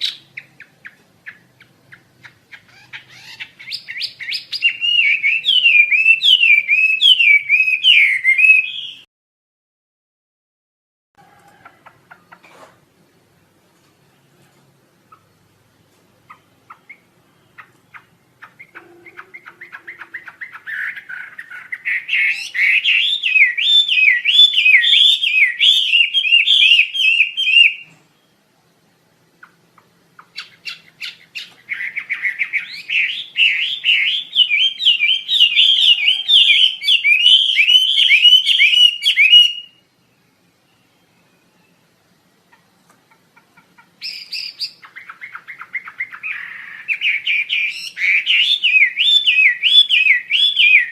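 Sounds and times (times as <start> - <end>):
bird trilling: 0.0 - 9.0, 16.2 - 27.9, 30.2 - 39.8, 42.5 - 50.9.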